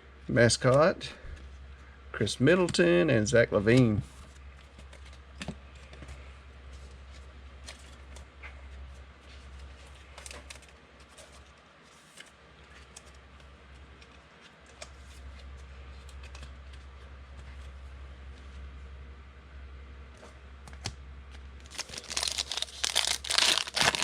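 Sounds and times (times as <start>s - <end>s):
low electrical hum: 0.0s - 24.0s
cards clicking and rustling: 9.7s - 16.9s, 20.6s - 24.0s.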